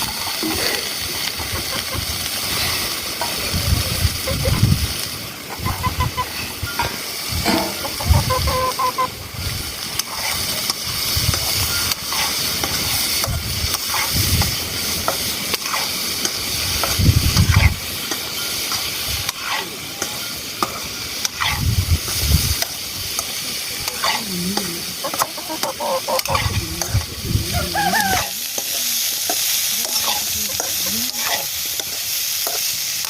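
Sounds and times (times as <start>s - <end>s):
food sizzling in a pan: 0.0s - 33.0s.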